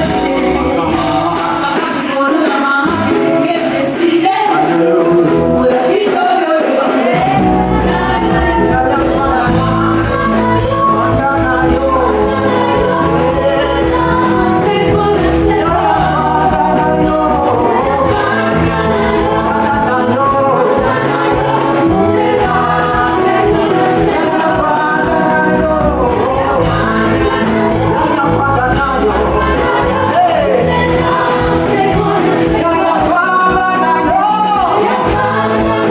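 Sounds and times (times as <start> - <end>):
bass and drums: 0.0 - 2.2, 7.1 - 35.9
choir singing: 0.0 - 35.9
live band playing: 0.0 - 35.9.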